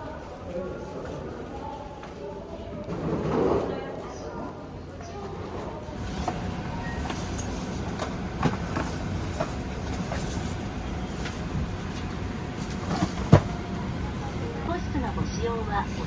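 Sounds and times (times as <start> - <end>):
airplane cabin hum: 6.0 - 16.0.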